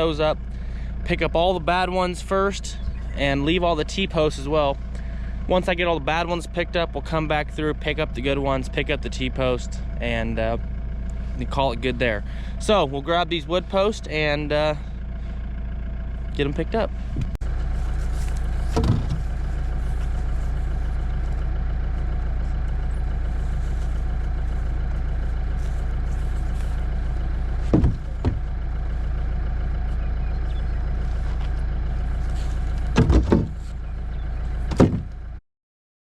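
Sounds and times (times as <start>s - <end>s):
car engine idling: 0.0s - 35.4s
wooden posts knocking: 18.4s - 19.4s, 27.4s - 28.6s, 32.8s - 33.7s, 34.7s - 35.1s.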